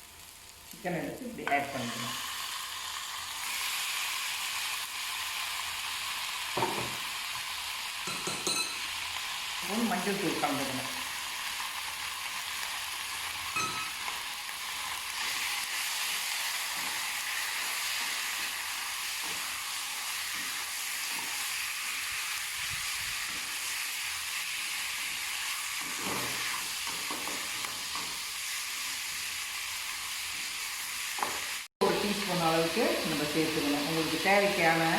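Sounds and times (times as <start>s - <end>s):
chicken sizzling in oil: 0.0s - 34.9s
spoon knocking in pan: 6.6s - 7.0s, 8.0s - 8.9s, 13.5s - 14.1s.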